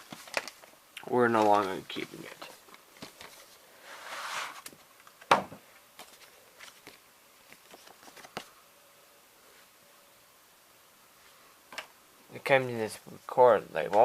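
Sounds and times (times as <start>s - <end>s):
plastic cassette rustle: 0.0s - 3.6s, 6.0s - 8.5s.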